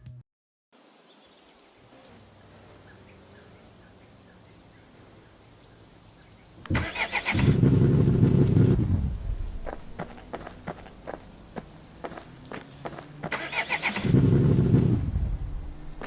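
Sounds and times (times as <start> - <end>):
truck engine starting and rumbling: 6.6 - 11.3, 12.8 - 16.0
bird chirps: 9.1 - 13.3.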